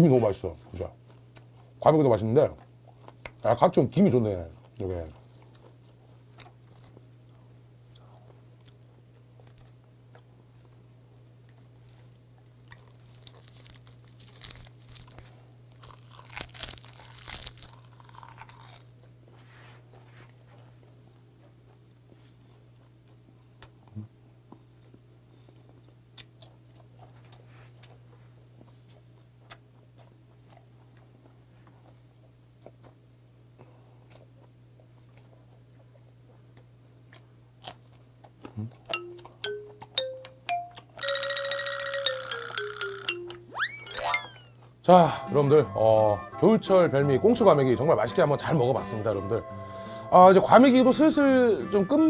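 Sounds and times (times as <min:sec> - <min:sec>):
crunchy chewing: 0:02.5 - 0:33.0, 0:33.6 - 0:40.0.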